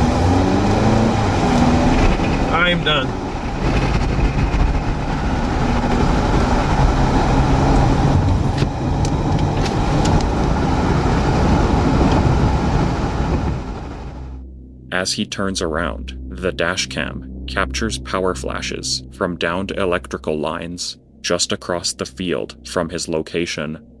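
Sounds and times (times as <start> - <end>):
engine and road noise: 0.0 - 14.4
low hum: 0.0 - 24.0.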